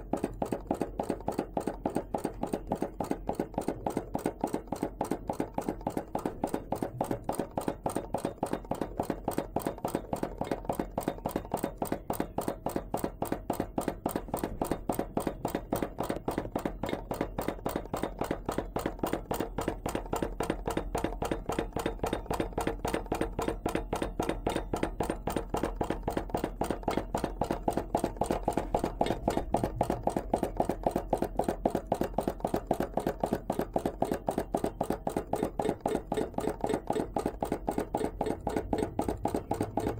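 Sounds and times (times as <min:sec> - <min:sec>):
hot-air engine ticking clatter: 0:00.0 - 0:39.9.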